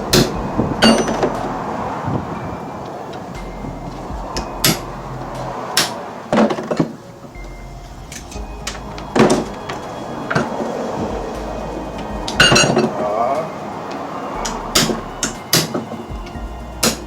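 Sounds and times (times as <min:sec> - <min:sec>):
hand tools striking metal: 0:00.0 - 0:02.0, 0:02.8 - 0:07.0, 0:11.2 - 0:17.0.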